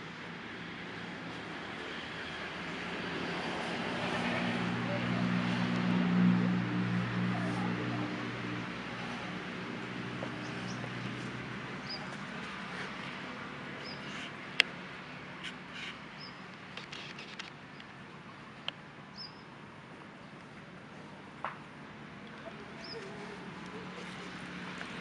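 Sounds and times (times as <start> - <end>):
bird chirping: 19.1 - 19.5.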